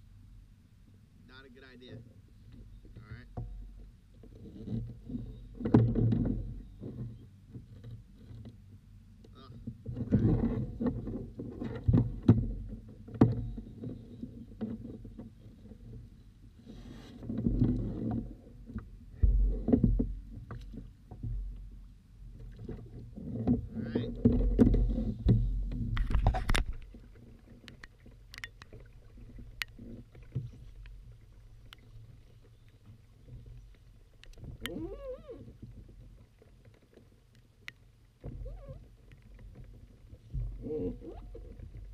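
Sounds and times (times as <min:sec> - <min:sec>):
bumps and knocks on plastic hull: 0:04.9 - 0:06.6, 0:09.7 - 0:13.7, 0:17.3 - 0:21.8, 0:22.4 - 0:27.2.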